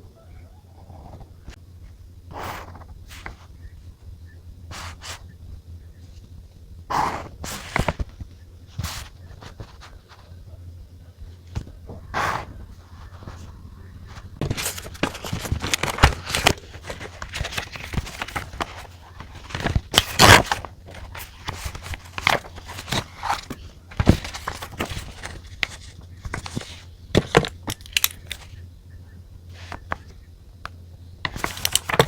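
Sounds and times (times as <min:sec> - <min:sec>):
faint low hum: 0:00.0 - 0:32.0
paper rustling: 0:07.4 - 0:10.4, 0:12.8 - 0:28.6, 0:29.5 - 0:30.0, 0:31.3 - 0:32.0.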